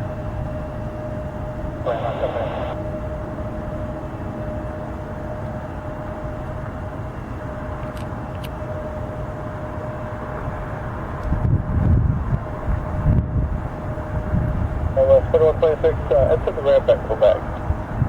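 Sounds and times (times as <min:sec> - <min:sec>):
jet engine rumble and whine: 0:00.0 - 0:18.0
radio static burst: 0:01.9 - 0:02.8, 0:15.0 - 0:17.4.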